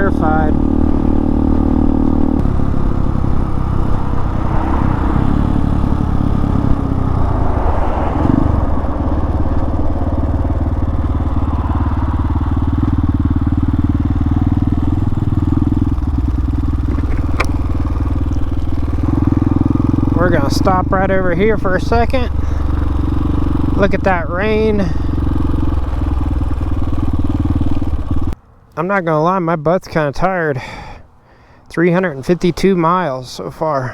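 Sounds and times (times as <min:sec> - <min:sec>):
motorcycle engine cruising: 0:00.0 - 0:28.5
rush of air: 0:03.7 - 0:14.3.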